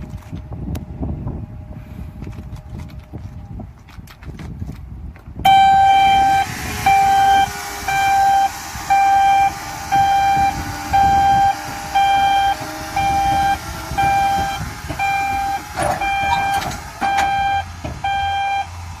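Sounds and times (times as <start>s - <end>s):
truck engine rumble: 0.0s - 19.0s
warning beeper beeping: 5.5s - 18.7s.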